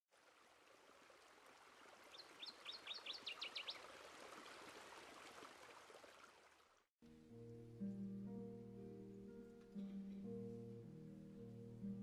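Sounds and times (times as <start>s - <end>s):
small bird singing: 2.1s - 3.8s.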